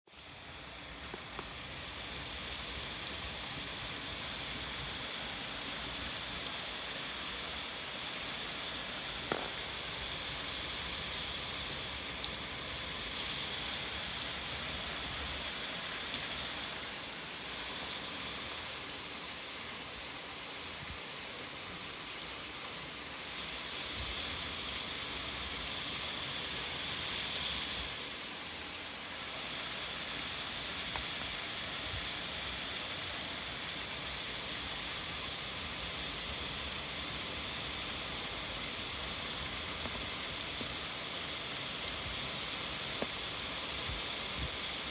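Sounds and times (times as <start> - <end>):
heavy rain pouring: 0.1 - 44.9
sharp tap: 9.3 - 9.6.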